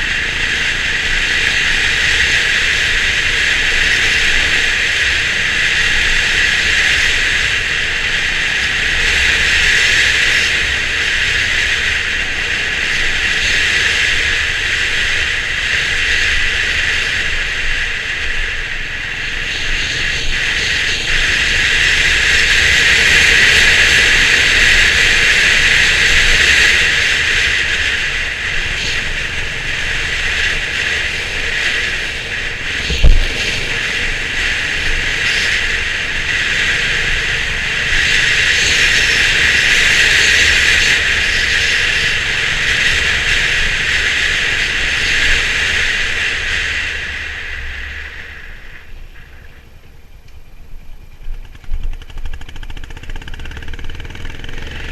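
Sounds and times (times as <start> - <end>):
motorcycle engine rumble: 0.0 - 54.9
wind and road noise: 0.0 - 54.9
sharp thump: 32.9 - 33.8.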